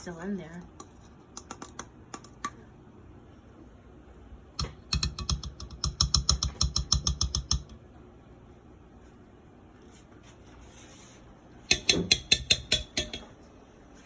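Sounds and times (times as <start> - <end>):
rapid clicking taps: 4.6 - 7.8.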